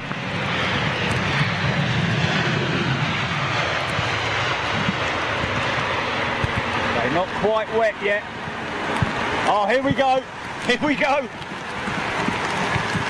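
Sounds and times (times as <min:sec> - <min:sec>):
jet airliner passing: 0:00.0 - 0:13.0.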